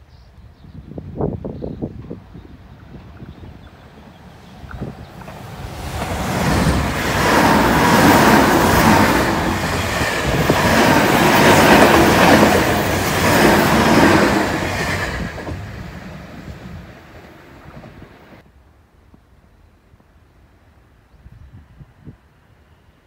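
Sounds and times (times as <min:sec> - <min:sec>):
train wheels rumbling on rails: 0:01.1 - 0:18.4.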